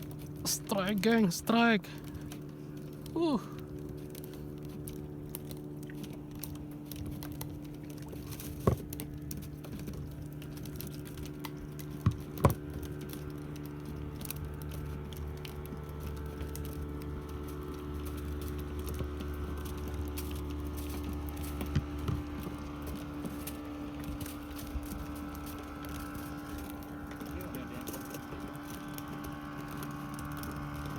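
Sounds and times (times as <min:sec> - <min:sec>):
boat engine running: 0:00.0 - 0:30.9
light patter: 0:00.0 - 0:30.9
sharp knocks on boat: 0:08.1 - 0:09.2, 0:11.9 - 0:12.8, 0:21.5 - 0:23.2.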